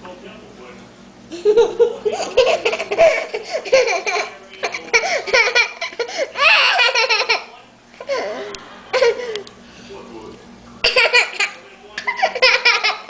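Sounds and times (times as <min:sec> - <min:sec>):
young child laughing: 0:01.3 - 0:09.4, 0:10.8 - 0:13.0.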